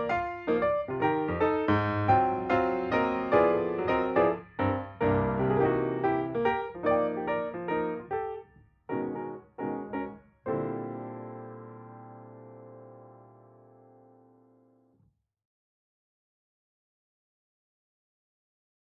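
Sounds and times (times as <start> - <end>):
piano music: 0.0 - 14.6.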